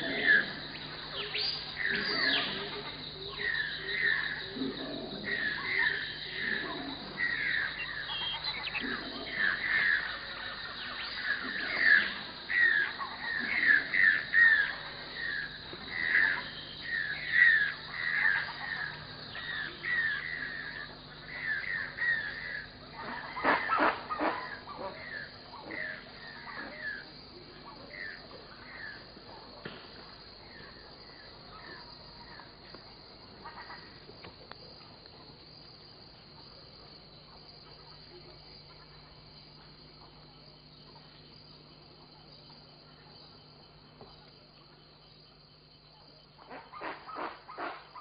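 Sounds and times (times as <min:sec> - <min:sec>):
birds calling: 0:00.0 - 0:29.8.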